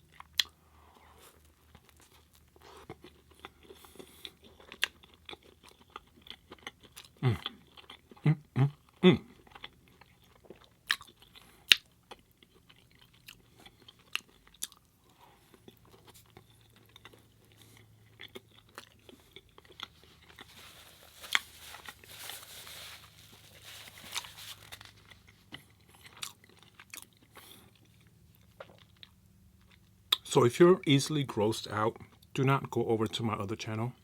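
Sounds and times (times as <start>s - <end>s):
close chewing and biting: 0.0s - 30.2s.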